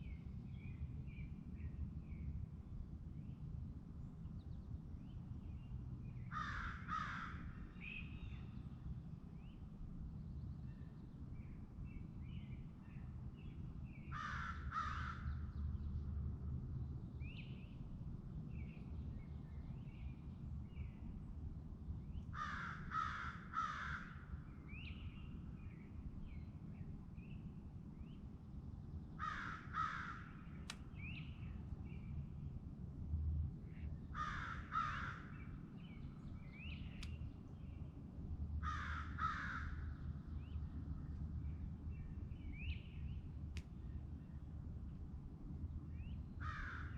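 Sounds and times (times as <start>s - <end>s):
low steady rumble: 0.0s - 46.9s
crow cawing: 6.3s - 7.5s, 14.2s - 15.2s, 22.4s - 24.2s, 29.2s - 30.4s, 34.2s - 35.3s, 38.6s - 39.8s, 46.4s - 46.9s.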